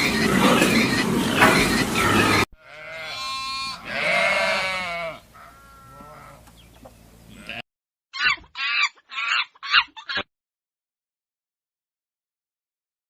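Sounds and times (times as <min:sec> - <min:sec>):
animal calls: 0:08.2 - 0:10.3.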